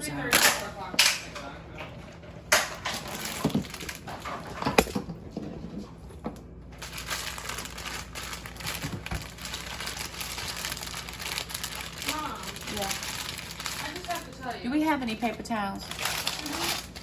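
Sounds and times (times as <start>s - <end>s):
packaging crinkling and rustling: 2.9s - 5.0s, 6.8s - 14.6s, 15.8s - 17.0s.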